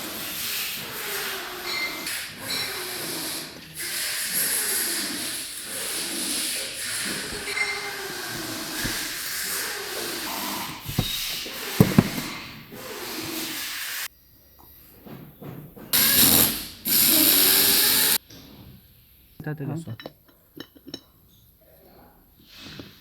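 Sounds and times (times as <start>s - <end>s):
steady workshop hissing: 3.0s - 14.1s.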